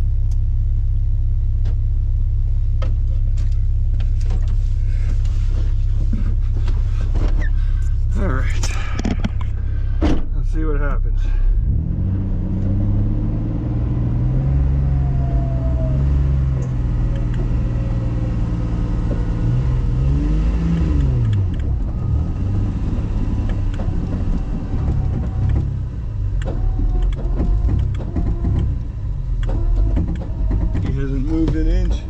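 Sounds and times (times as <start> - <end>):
vehicle engine running and revving: 10.6 - 32.0.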